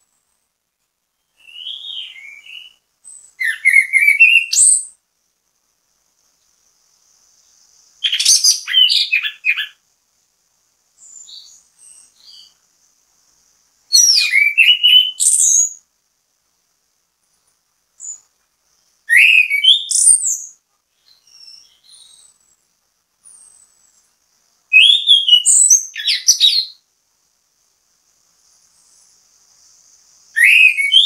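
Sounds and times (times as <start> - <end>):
thrush singing whistled notes: 1.1 - 5.0, 7.4 - 9.8, 11.0 - 12.6, 13.9 - 15.9, 19.0 - 26.8, 28.5 - 31.0.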